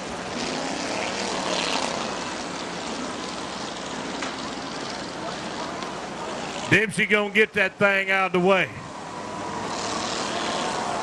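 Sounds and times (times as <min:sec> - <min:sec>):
race car engines: 0:00.0 - 0:11.0.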